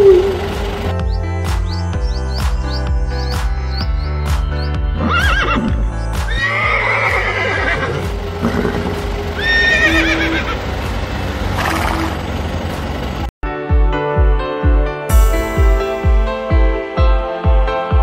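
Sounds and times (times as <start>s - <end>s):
background music: 0.0s - 11.3s, 13.4s - 18.0s
horse whinnying: 5.0s - 10.6s.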